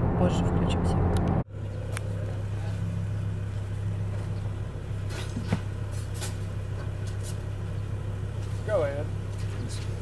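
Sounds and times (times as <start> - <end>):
car engine idling: 0.0 - 10.0
car road noise: 0.0 - 10.0.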